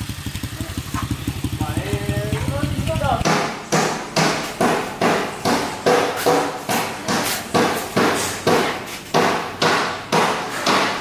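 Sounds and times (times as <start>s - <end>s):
rhythmic striking blows: 2.4s - 11.0s.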